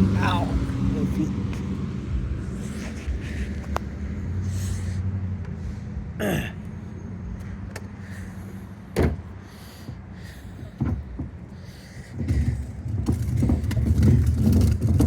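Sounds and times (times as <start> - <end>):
garbage truck engine running: 5.6 - 15.0.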